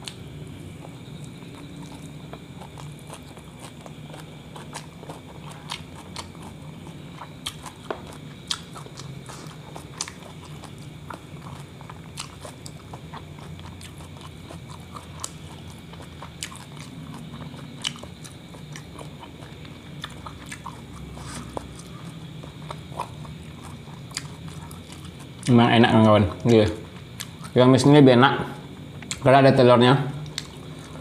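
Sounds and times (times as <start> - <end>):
close chewing with mouth clicks: 0.0 - 27.6, 28.8 - 29.3, 30.2 - 31.0
steady low hum: 0.0 - 31.0.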